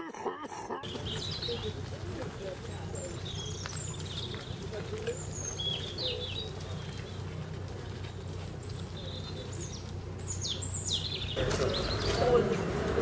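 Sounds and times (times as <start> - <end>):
small birds chirping: 0.8 - 13.0.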